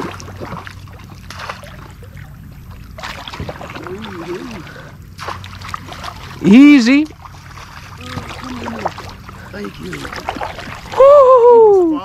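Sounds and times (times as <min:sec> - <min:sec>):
water sloshing around kayak: 0:00.0 - 0:12.0.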